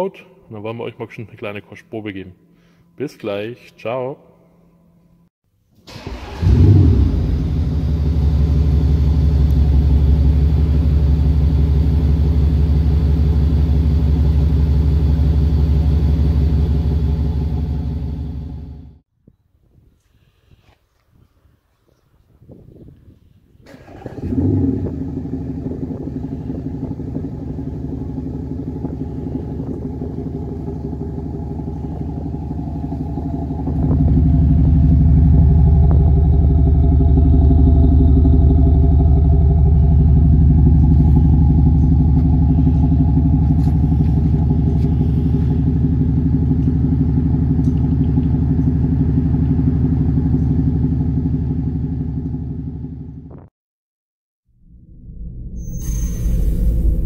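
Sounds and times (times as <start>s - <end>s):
diesel engine idling: 5.9s - 19.0s, 23.7s - 53.1s.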